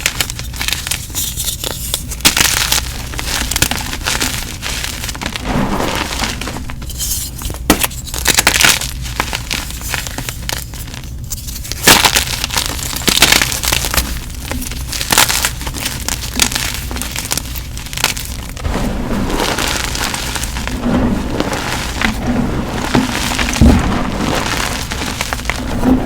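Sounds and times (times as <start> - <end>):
chalk crunching and crackling: 0.0 - 26.0
steady low hum: 14.2 - 26.0.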